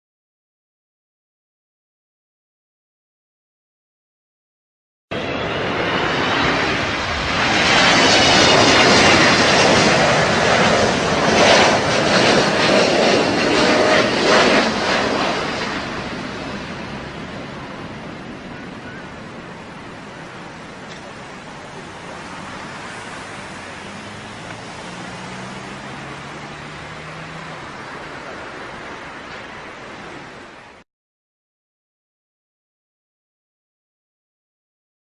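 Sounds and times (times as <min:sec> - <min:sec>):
aircraft flying low past: 0:05.1 - 0:30.8.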